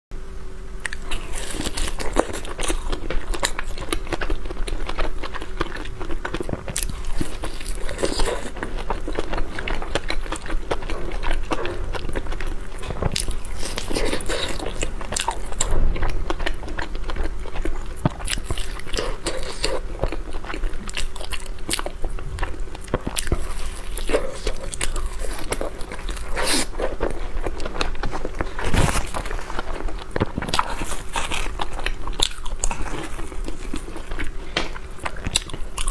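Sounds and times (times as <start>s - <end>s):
person chewing pastry: 0.8s - 35.9s.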